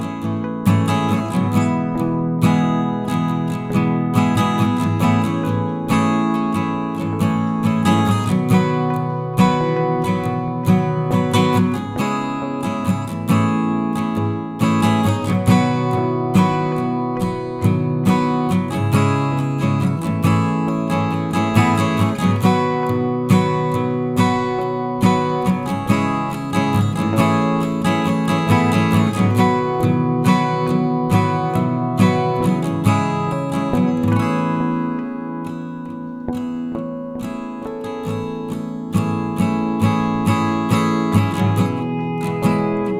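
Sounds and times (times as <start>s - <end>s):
acoustic guitar music: 0.0s - 42.9s.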